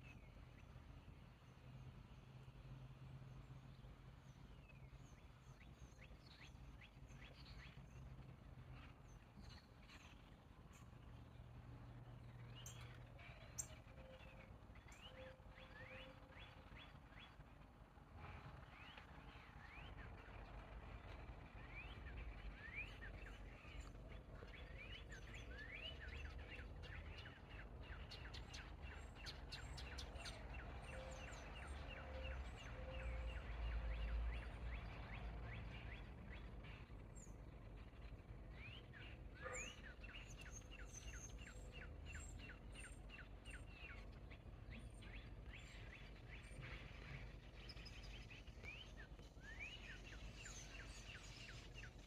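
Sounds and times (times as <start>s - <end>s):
birds chirping: 21.0s - 52.0s.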